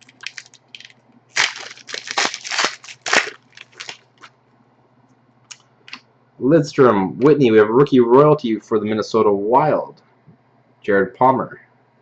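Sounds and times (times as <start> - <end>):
wrapper crinkling and tearing: 0.0 - 4.3.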